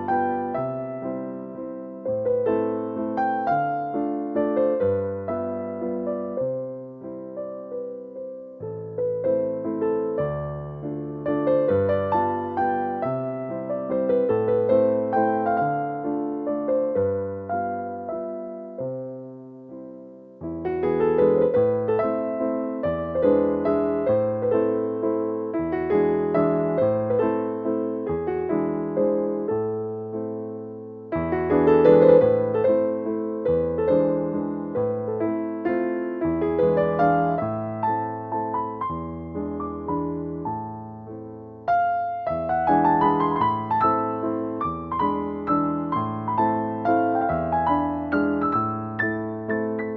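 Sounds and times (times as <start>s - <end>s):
solo piano waltz: 0.0s - 49.9s.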